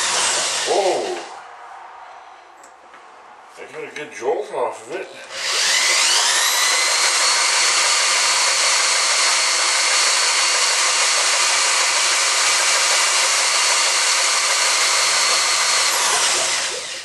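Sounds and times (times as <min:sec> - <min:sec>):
small electric motor whirring: 0:05.3 - 0:17.0.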